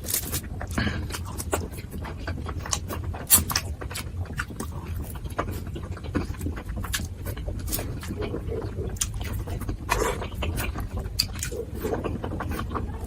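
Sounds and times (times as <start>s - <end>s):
wet chewing and lip smacking: 0.0s - 13.0s.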